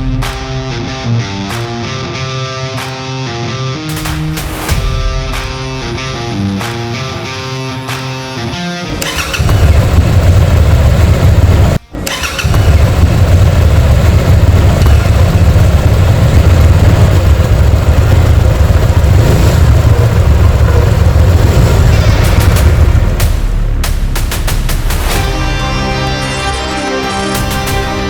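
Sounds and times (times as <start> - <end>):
motorcycle engine running: 8.9 - 25.4.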